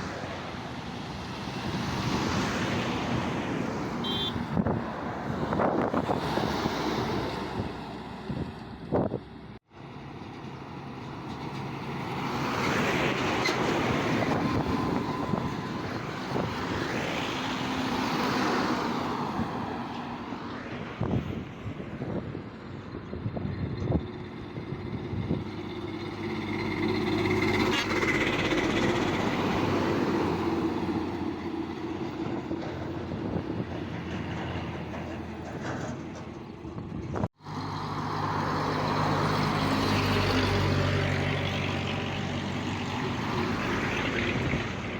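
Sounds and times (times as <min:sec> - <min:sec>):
heavy trucks driving past: 0:00.0 - 0:44.9.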